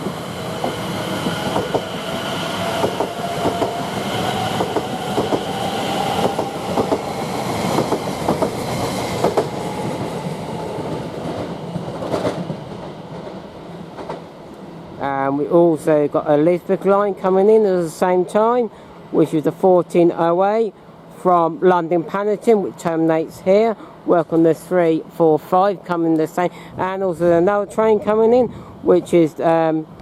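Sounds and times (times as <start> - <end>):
train traction motors whining: 0.0 - 11.1.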